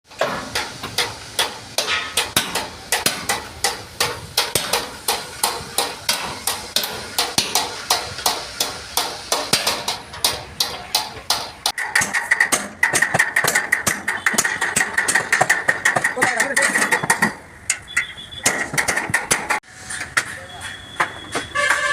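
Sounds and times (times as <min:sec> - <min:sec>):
hammer on sheet metal: 0:00.1 - 0:17.8, 0:18.4 - 0:19.7.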